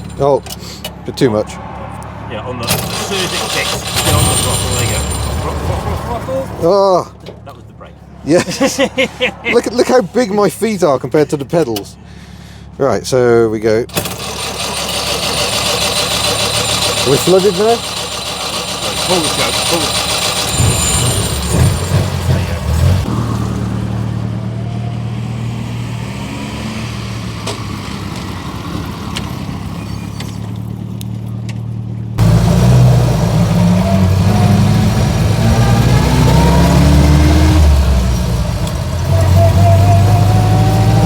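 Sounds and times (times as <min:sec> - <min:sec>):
small car engine running and revving: 0:02.6 - 0:06.2, 0:13.9 - 0:41.0.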